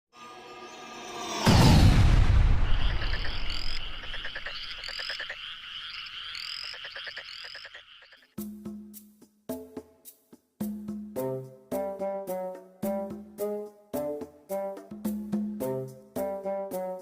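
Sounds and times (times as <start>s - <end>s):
deep boom: 1.4s - 4.4s
frogs calling with trills: 2.7s - 8.4s.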